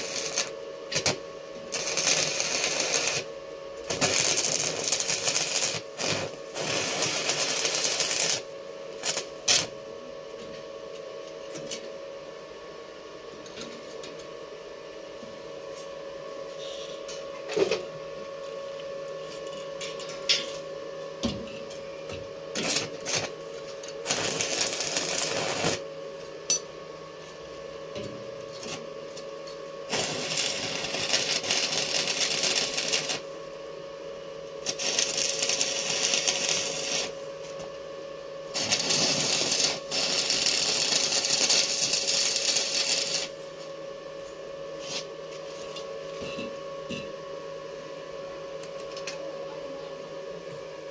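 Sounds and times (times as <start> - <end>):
arc welding crackling and sizzling: 0.0 - 10.4, 22.5 - 27.6, 28.4 - 43.9
steady mains hum: 0.0 - 50.9.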